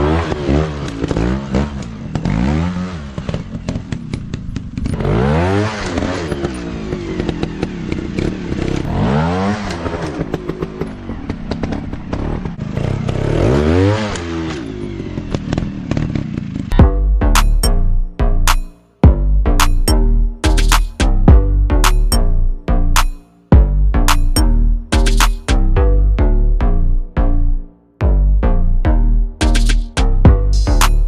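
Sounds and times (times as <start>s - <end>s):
off-road motorcycle engines revving: 0.0s - 18.7s.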